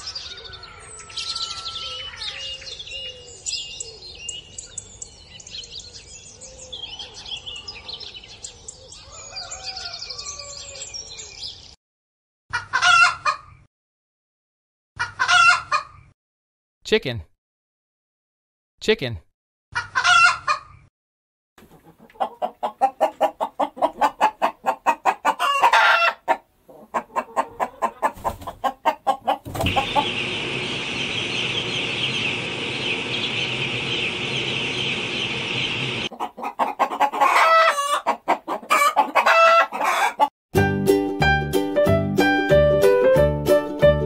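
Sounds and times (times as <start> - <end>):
loud hen call: 12.5 - 13.4, 15.0 - 15.8, 19.8 - 20.6, 22.2 - 32.1, 36.0 - 40.3
chicks peeping: 21.6 - 40.3
hens clucking: 21.6 - 40.3.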